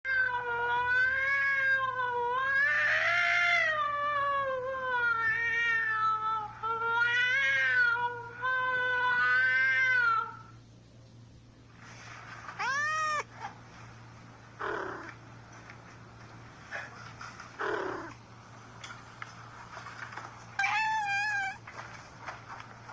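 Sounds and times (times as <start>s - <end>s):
faint rustles: 10.8s - 22.9s
cat meow: 12.6s - 13.3s, 14.6s - 15.1s, 20.6s - 21.6s
cat yowling: 12.6s - 13.3s, 14.6s - 15.1s, 17.6s - 18.1s, 20.6s - 21.6s.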